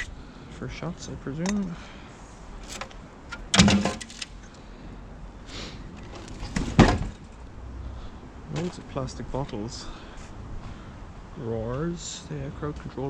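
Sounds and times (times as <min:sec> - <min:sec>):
rubbish clattering in a skip: 0:02.6 - 0:04.3, 0:05.9 - 0:07.4, 0:08.5 - 0:09.0.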